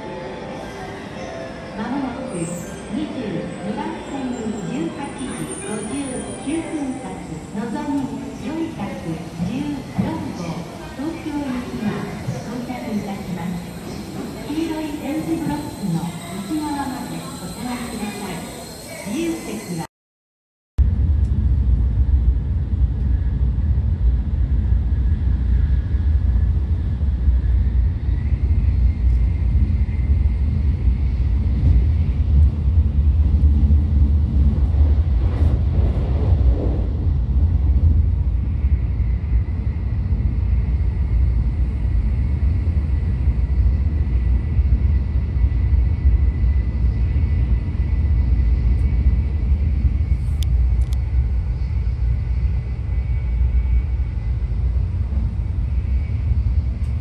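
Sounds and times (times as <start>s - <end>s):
faint high whine: 12.6s - 19.9s
train cabin rumble: 20.9s - 57.0s.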